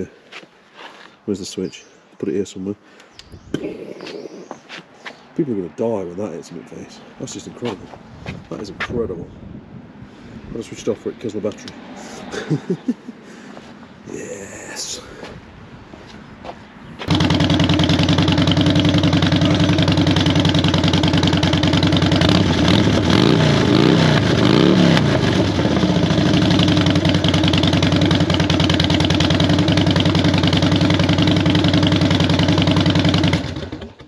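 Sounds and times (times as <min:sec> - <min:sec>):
motorcycle engine running: 0:17.0 - 0:34.0.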